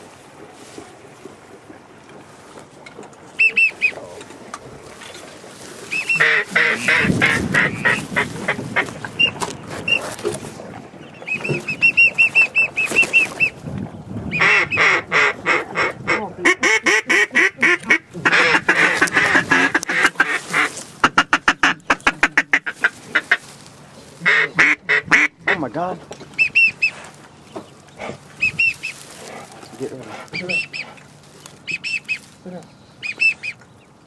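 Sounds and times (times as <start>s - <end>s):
duck quacking: 5.9s - 13.6s, 14.3s - 23.6s, 24.2s - 27.1s, 28.0s - 32.2s, 33.0s - 33.6s.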